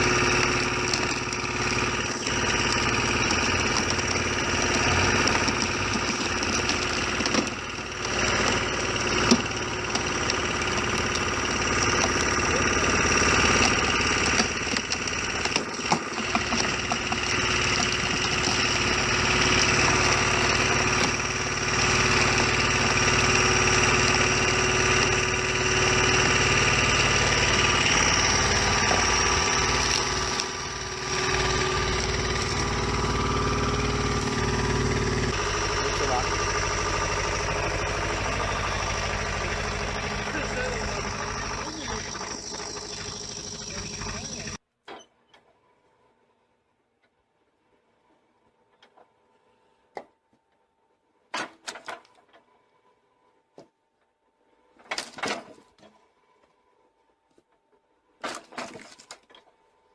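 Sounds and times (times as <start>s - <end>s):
engine-driven machine running: 0.0s - 44.6s.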